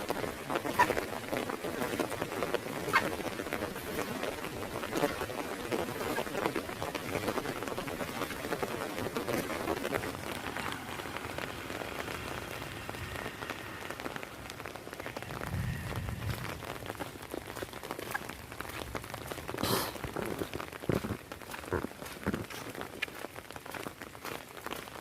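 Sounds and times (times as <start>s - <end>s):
heavy rain on an umbrella: 0.0s - 25.0s.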